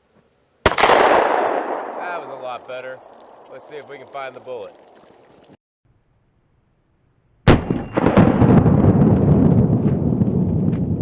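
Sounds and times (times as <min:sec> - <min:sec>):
gunshot with rumbling echo: 0:00.7 - 0:04.2, 0:07.5 - 0:11.0.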